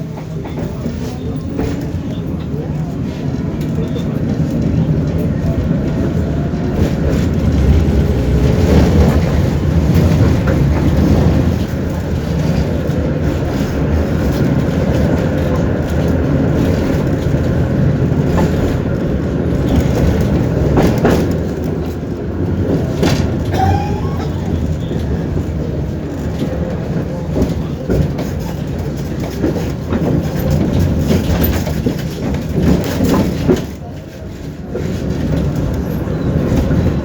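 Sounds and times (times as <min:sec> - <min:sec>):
clacks over rail joints: 0:00.0 - 0:37.0
tram wheels rumbling on rails: 0:00.0 - 0:37.0.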